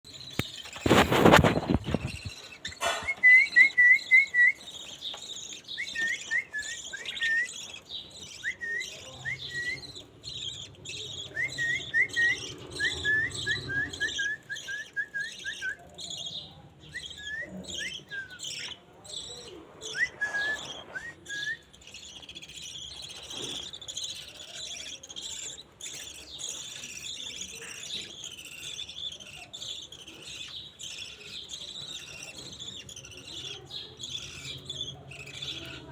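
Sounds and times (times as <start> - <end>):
budgerigars chirping and chattering: 0.1 - 35.9.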